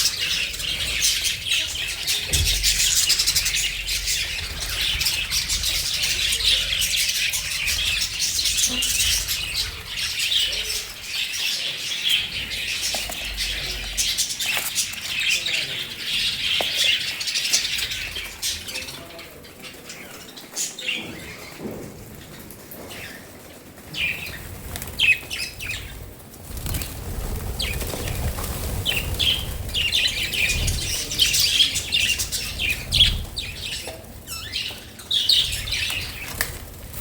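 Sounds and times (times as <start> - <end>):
budgerigars chattering: 0.0 - 21.6.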